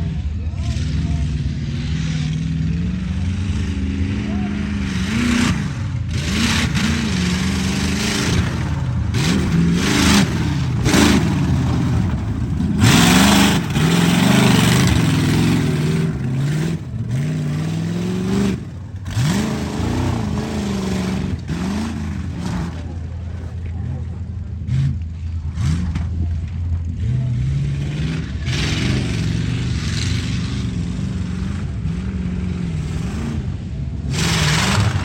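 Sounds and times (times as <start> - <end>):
truck engine revving: 0.0 - 35.0
rushes of noise: 4.5 - 26.7, 27.7 - 35.0.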